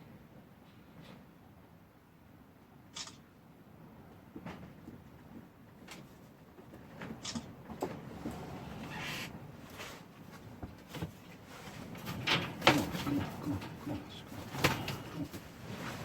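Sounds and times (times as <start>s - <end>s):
knocks and clatters: 10.4s - 16.0s.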